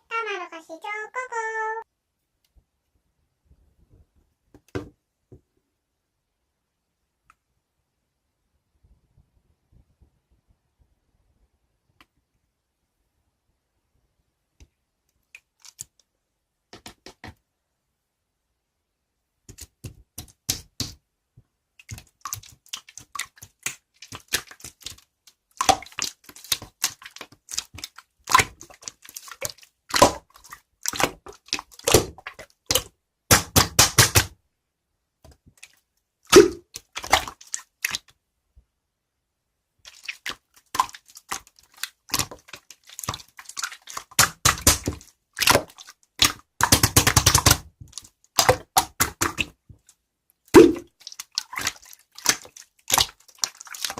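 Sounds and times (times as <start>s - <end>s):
slime clicking and popping: 29.4s - 34.3s, 42.1s - 49.6s.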